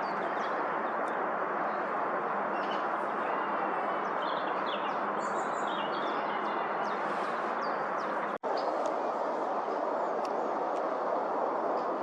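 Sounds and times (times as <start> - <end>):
small birds chirping: 0.0 - 8.8
steady rushing noise: 6.6 - 12.0.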